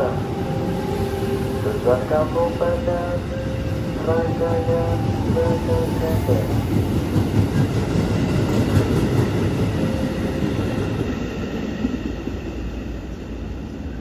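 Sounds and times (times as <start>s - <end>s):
train wheels clattering over rails: 4.6s - 12.4s.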